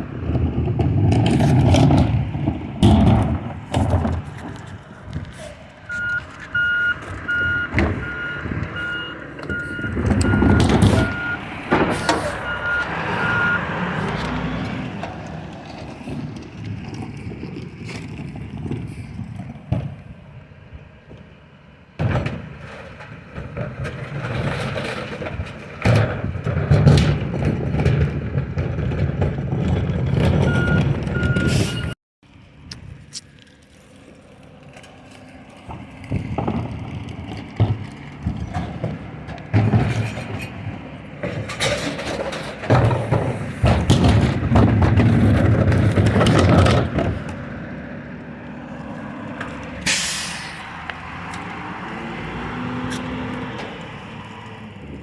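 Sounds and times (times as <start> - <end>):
truck engine revving: 0.0 - 19.9, 34.9 - 55.0
recyclables clattering and banging: 0.1 - 20.3, 22.0 - 31.9, 34.6 - 48.2
short beeps: 12.0 - 13.6.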